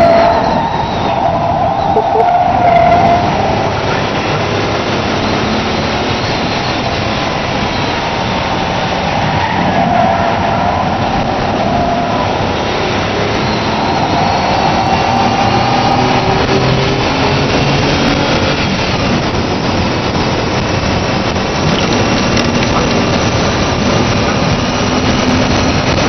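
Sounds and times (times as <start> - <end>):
road and wind noise: 0.0 - 26.0
car engine running: 17.4 - 26.0.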